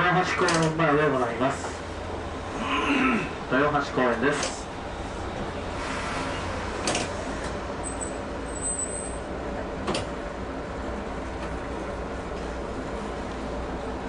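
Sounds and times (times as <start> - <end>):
tram equipment hum: 0.0 - 14.0.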